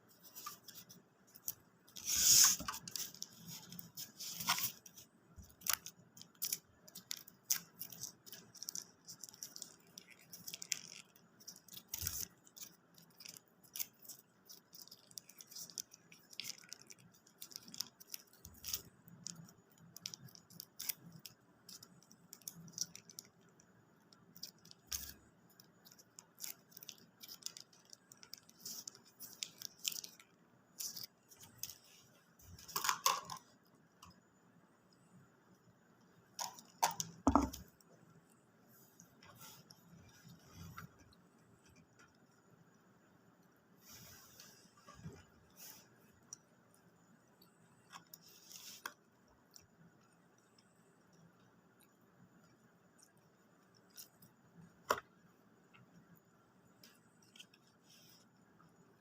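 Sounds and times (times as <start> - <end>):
soft crisp crackles: 0.0 - 59.0.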